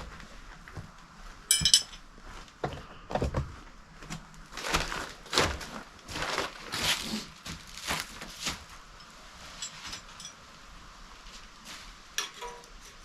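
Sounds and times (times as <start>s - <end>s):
tools scraping and knocking: 1.5s - 2.0s, 12.2s - 13.0s.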